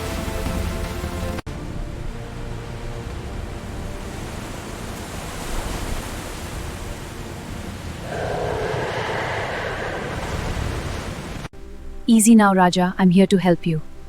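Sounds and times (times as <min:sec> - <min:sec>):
floodwater rushing: 0:04.1 - 0:11.5.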